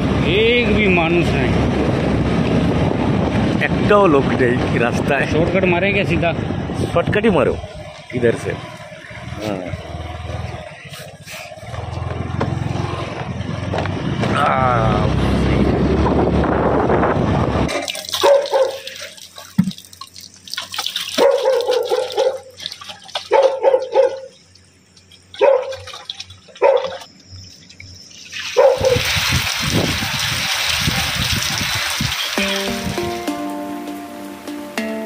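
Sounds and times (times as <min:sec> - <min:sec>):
dog barking: 0:18.2 - 0:18.9, 0:21.2 - 0:22.6, 0:23.3 - 0:24.4, 0:25.4 - 0:25.9, 0:26.6 - 0:27.0, 0:28.6 - 0:29.0.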